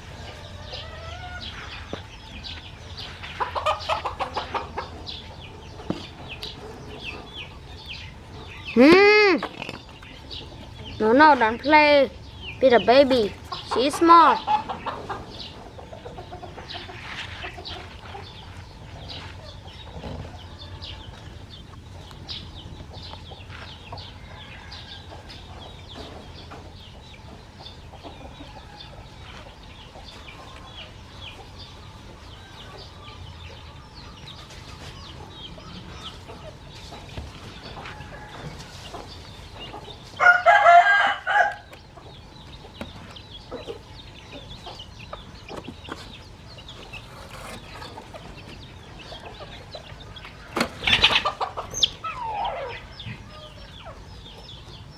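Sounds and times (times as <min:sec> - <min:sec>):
chickens clucking: 0:00.0 - 0:54.9
rooster crowing: 0:40.2 - 0:41.7.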